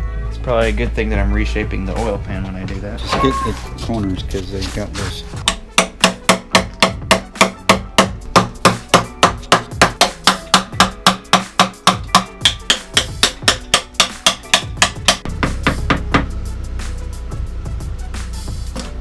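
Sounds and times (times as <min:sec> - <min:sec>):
hammer striking metal: 0:05.4 - 0:16.3.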